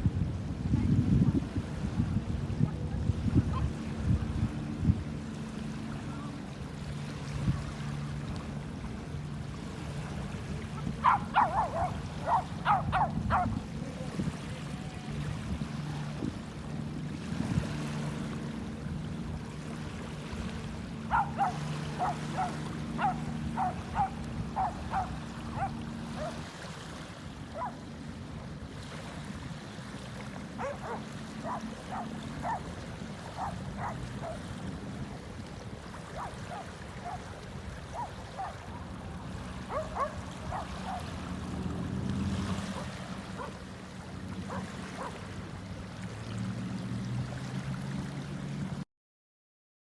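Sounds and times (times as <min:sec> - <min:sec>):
surf washing: 0:00.0 - 0:48.8
dog barking: 0:10.8 - 0:13.6, 0:21.1 - 0:26.4, 0:27.5 - 0:27.8, 0:30.6 - 0:32.7, 0:33.3 - 0:34.4, 0:36.1 - 0:37.3, 0:37.9 - 0:38.7, 0:39.7 - 0:41.2, 0:42.7 - 0:43.6, 0:44.5 - 0:45.2.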